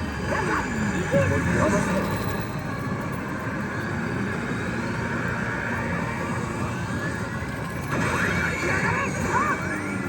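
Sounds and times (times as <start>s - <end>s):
din of slot machines: 7.5s - 10.0s.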